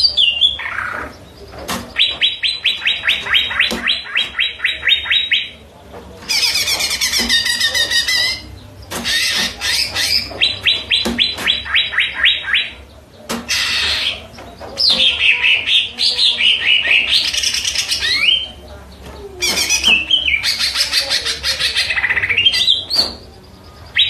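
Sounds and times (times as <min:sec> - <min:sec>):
bird singing trills and whistles: 0:01.9 - 0:05.6, 0:06.3 - 0:12.9, 0:13.5 - 0:18.6, 0:19.2 - 0:24.0.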